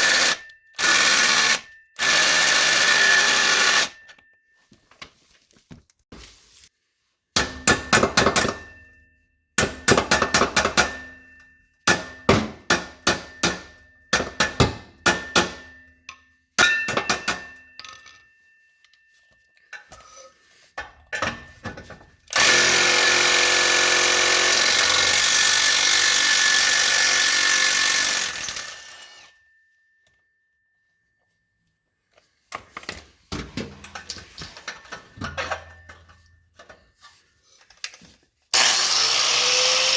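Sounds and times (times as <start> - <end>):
power tool running: 0.0 - 4.0, 22.3 - 29.3, 38.5 - 39.9.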